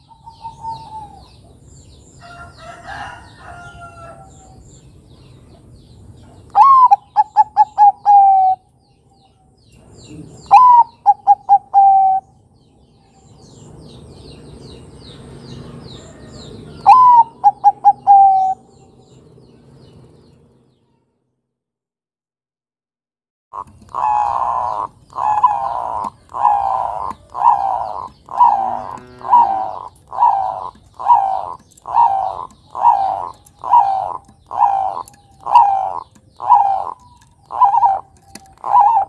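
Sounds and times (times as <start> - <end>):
dove cooing: 0.0 - 1.6, 6.3 - 8.7, 10.1 - 12.3, 16.0 - 18.8, 23.6 - 39.0.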